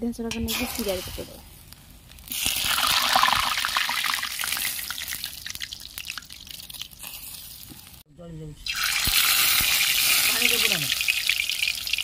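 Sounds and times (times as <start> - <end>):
batter sizzling in hot oil: 2.1 - 8.0, 8.7 - 12.0.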